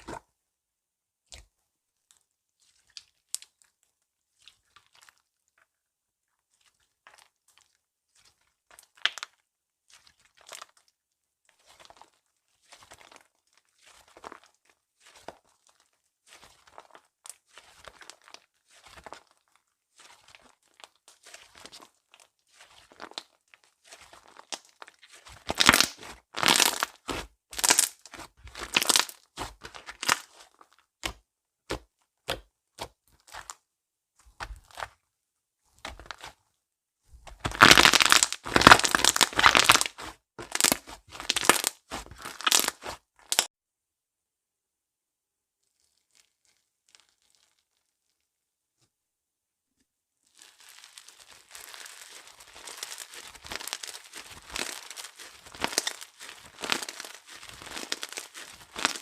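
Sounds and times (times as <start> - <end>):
slime crackling and popping: 8.3 - 10.9, 11.6 - 33.6, 34.3 - 35.0, 35.8 - 36.4, 37.2 - 43.5, 45.7 - 47.7, 50.3 - 59.0.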